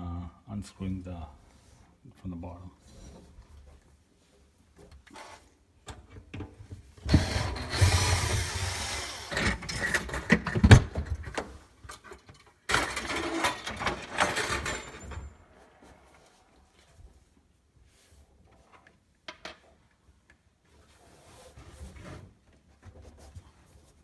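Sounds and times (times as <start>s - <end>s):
power drill running: 7.1s - 9.6s.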